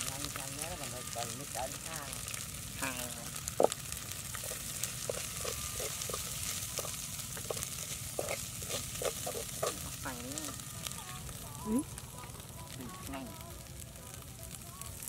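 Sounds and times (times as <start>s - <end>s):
food sizzling in a pot: 0.0s - 15.0s
metal spoon scraping a pot: 3.6s - 10.5s.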